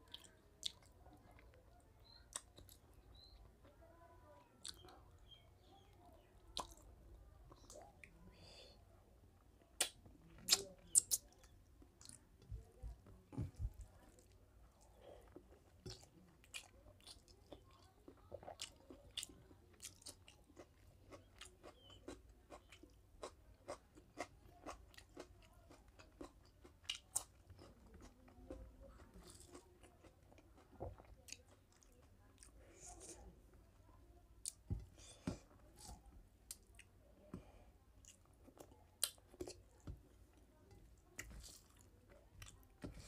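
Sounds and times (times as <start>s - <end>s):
eating with wet mouth clicks: 9.8s - 12.2s.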